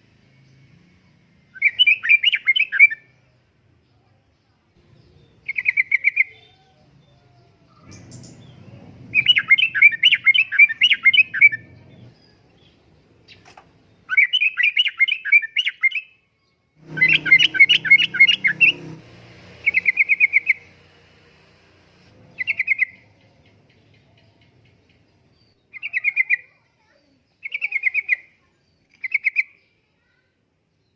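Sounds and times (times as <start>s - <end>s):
bird chattering song: 1.5s - 3.2s, 4.8s - 16.2s, 16.8s - 19.0s, 19.6s - 20.8s, 22.2s - 29.9s.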